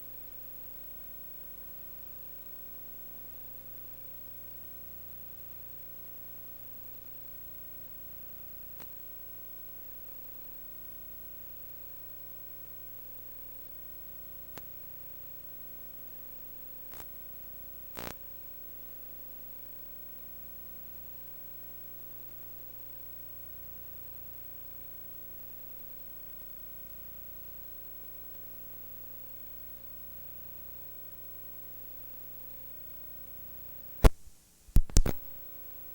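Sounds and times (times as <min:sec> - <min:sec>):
electrical hum and hiss: 0:00.0 - 0:35.9
short clicks: 0:34.8 - 0:35.4.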